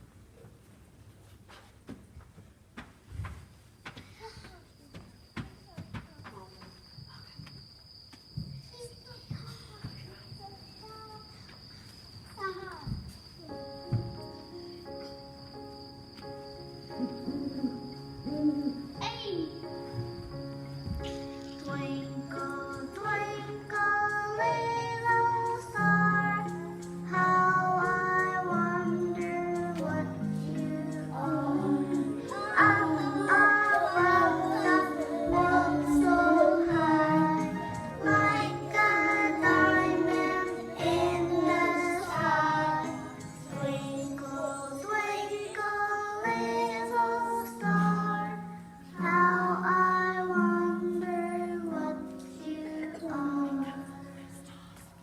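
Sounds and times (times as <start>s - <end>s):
instrumental accompaniment: 13.6s - 45.4s
children singing: 21.1s - 54.4s.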